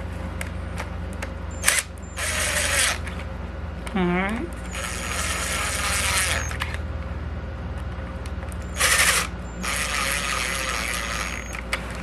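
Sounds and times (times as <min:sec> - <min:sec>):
steady low hum: 0:00.0 - 0:12.0
ratcheting screwdriver driving screws: 0:01.6 - 0:03.2, 0:04.7 - 0:06.8, 0:08.6 - 0:11.6.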